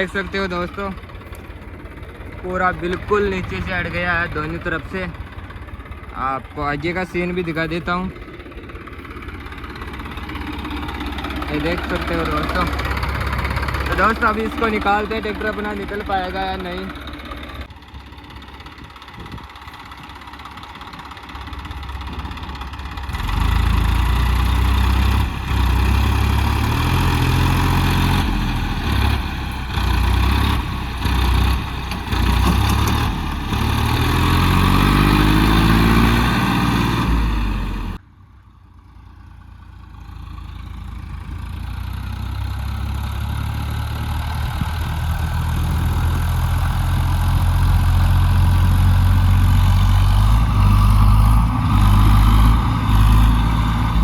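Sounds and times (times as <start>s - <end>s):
tractor diesel engine revving: 0.0s - 38.0s, 39.8s - 54.0s.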